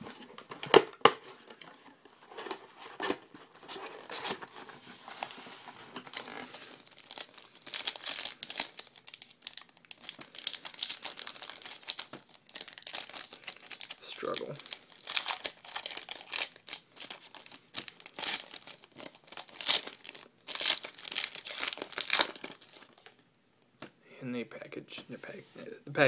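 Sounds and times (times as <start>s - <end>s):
plastic wrapper tearing and crinkling: 6.0s - 23.2s.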